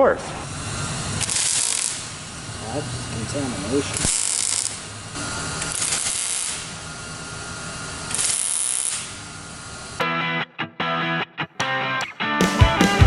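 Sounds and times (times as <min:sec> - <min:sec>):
power grinder grinding metal: 0:00.4 - 0:09.4
rock music: 0:10.0 - 0:13.0.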